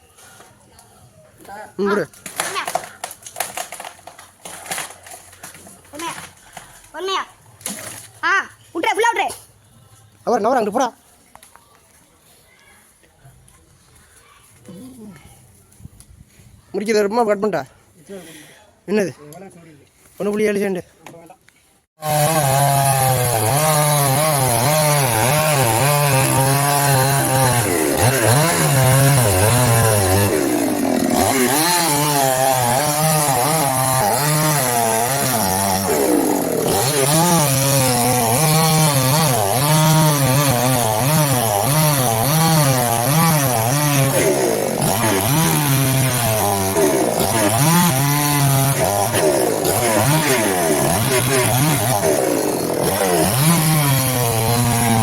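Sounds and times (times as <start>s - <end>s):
chainsaw cutting wood: 2.2s - 6.9s, 22.0s - 55.0s.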